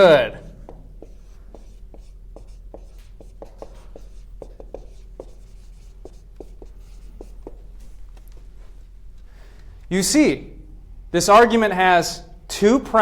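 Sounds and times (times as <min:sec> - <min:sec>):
writing strokes on a board: 0:00.6 - 0:08.0.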